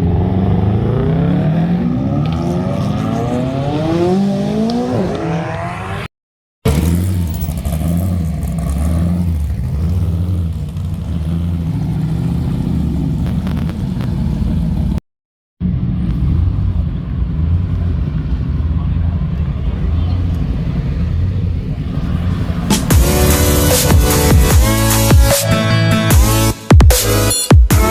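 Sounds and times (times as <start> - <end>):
sports car engine accelerating: 0.0 - 6.1, 6.7 - 15.0, 15.6 - 27.3
engine idling with rumbling exhaust: 7.4 - 15.0, 15.6 - 25.3.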